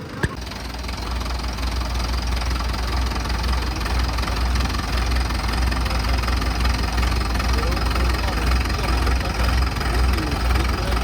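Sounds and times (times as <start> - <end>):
diesel tractor engine throbbing: 0.0 - 11.0.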